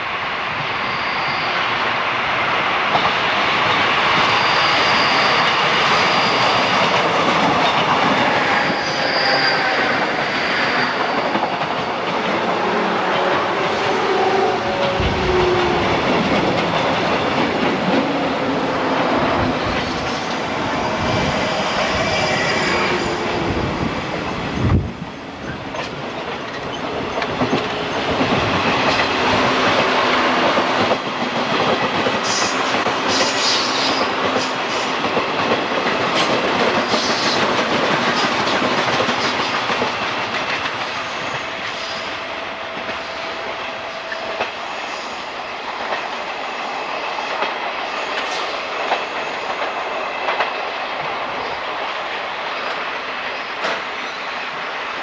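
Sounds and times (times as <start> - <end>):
high wheel squeal: 0.7 - 2.0, 3.8 - 15.9, 18.4 - 23.5
train wheels clattering: 2.8 - 54.6.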